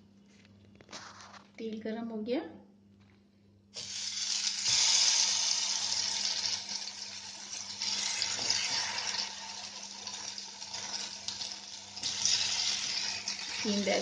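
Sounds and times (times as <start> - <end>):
vegetable slices sizzling in oil: 3.8 - 14.0.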